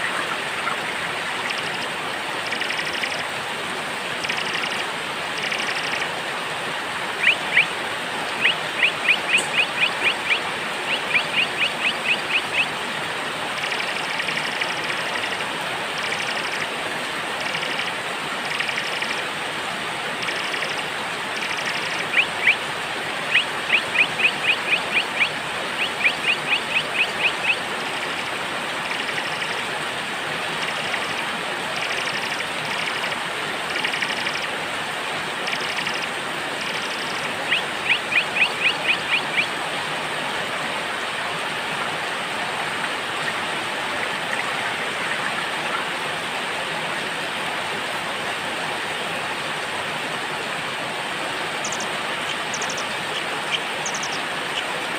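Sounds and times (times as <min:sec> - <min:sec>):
rain hiss: 0:00.0 - 0:54.9
faint high bird chirps: 0:53.8 - 0:54.2.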